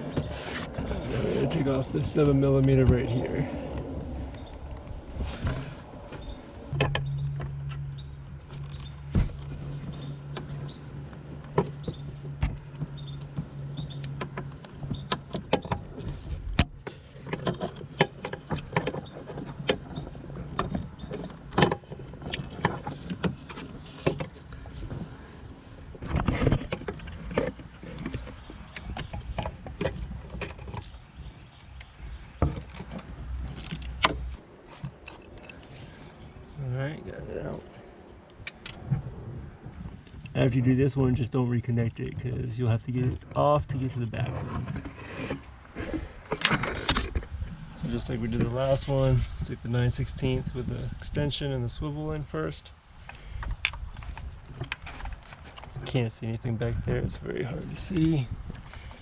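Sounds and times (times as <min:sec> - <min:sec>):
steady low hum: 0:00.0 - 0:27.3.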